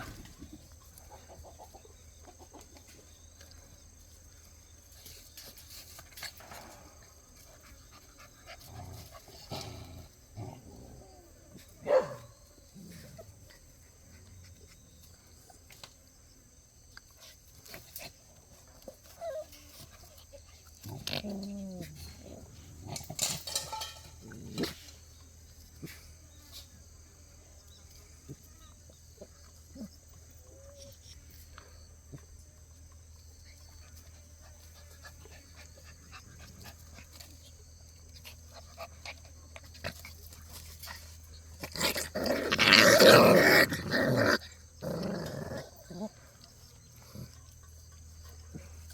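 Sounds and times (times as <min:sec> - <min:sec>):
puppies growling: 0:05.9 - 0:11.7, 0:20.2 - 0:26.0, 0:38.2 - 0:48.9.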